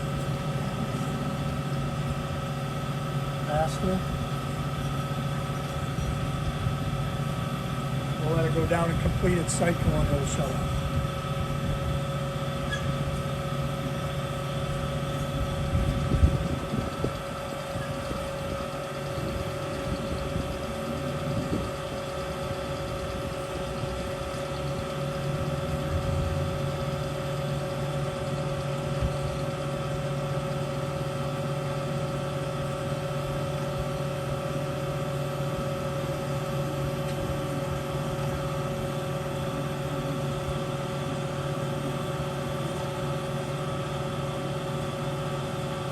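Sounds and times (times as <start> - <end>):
band saw humming: 0.0 - 33.9.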